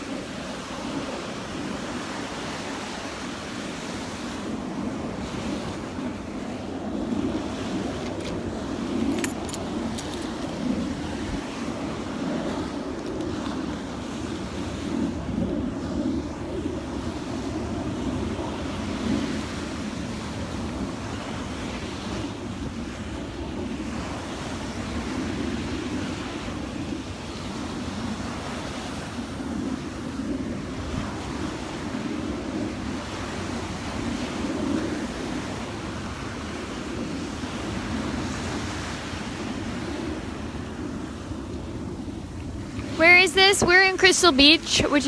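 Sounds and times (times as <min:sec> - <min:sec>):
surf washing onto sand beach: 0:00.0 - 0:45.0
wind buffeting microphone: 0:00.0 - 0:45.0.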